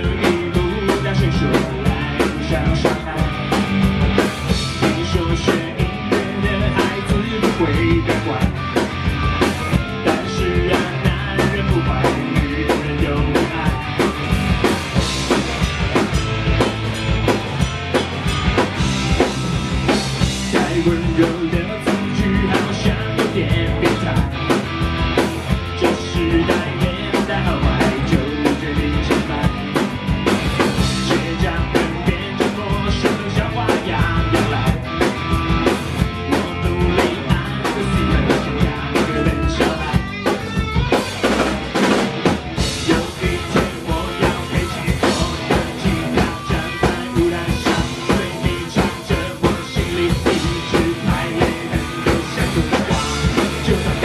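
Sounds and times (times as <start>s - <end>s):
drum kit beat: 0.0s - 54.0s
live rock band playing: 0.0s - 54.0s.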